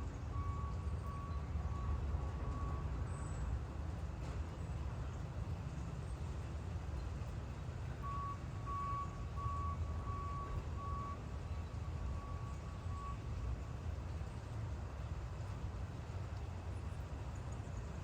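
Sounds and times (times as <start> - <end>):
vehicle reversing alarm beeping: 0.0 - 3.6, 7.7 - 14.0.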